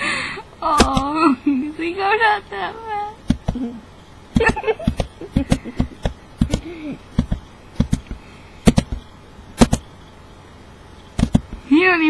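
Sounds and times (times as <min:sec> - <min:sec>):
sharp taps and clicks: 0:04.3 - 0:09.9, 0:11.2 - 0:11.6.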